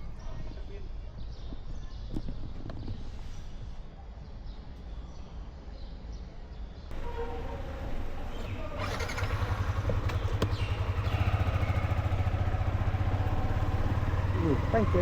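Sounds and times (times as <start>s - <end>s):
motorcycle engine running: 6.9s - 15.0s.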